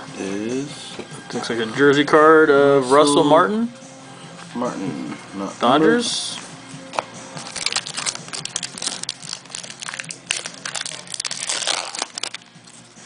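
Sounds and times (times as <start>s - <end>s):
card pack wrappers crinkling: 7.4s - 12.8s.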